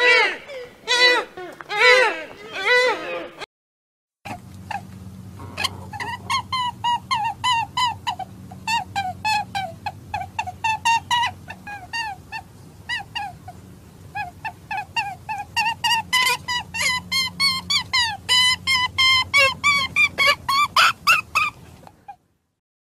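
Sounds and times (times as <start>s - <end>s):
steady low hum: 4.3s - 22.2s.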